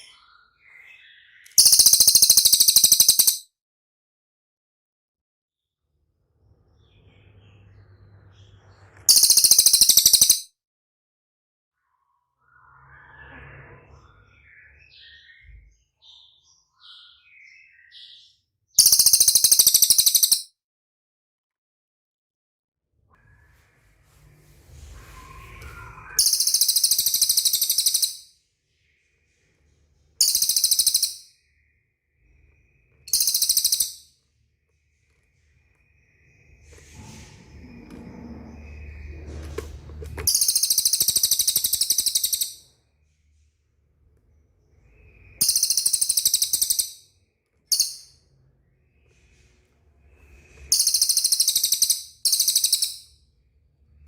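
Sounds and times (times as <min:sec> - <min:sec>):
bird trilling high-pitched: 0:01.4 - 0:03.4, 0:09.1 - 0:10.5, 0:18.8 - 0:20.5, 0:26.1 - 0:28.3, 0:30.2 - 0:31.4, 0:33.1 - 0:34.1, 0:40.3 - 0:42.7, 0:45.4 - 0:47.0, 0:47.7 - 0:48.2, 0:50.7 - 0:53.1.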